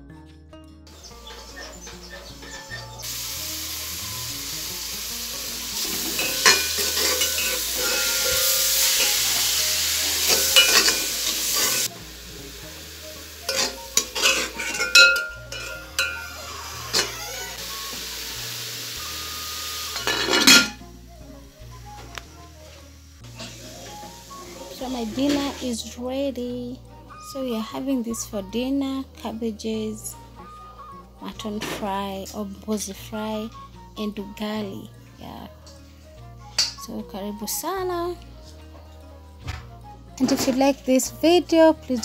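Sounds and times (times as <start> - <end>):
cabbage sizzling in a pot: 3.0 - 20.8, 21.7 - 25.9
metal spoon scraping a pot: 5.8 - 11.9, 13.4 - 17.6, 20.0 - 20.8
spoon clinking on a pot: 6.1 - 9.3, 10.2 - 11.9, 13.5 - 17.1, 20.0 - 20.8.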